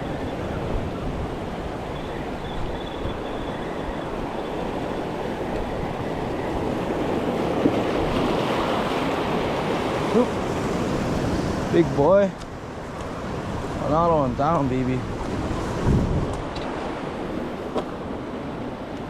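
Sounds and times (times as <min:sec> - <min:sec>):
ocean waves washing ashore: 0:00.0 - 0:19.0
wind buffeting microphone: 0:00.0 - 0:19.0.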